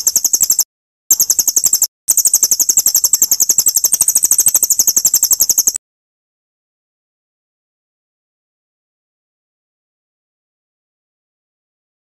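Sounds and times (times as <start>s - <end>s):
songbird chirping trill: 0.0s - 5.8s.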